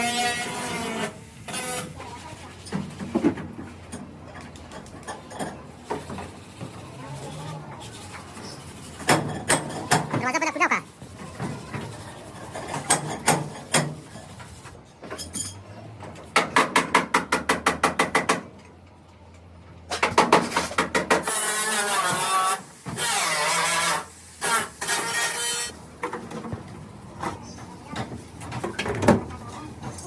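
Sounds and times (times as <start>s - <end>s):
power tool with wavering pitch: 21.2s - 25.7s.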